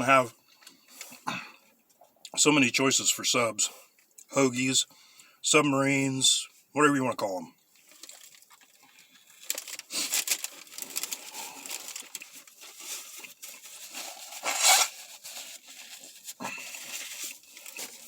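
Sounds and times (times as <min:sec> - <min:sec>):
paper wrapper crinkling: 0:07.8 - 0:18.0.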